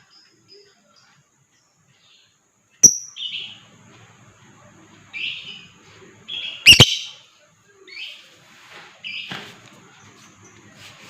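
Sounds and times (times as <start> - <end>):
lovebird harsh chirps: 2.8 - 3.4, 6.6 - 7.2.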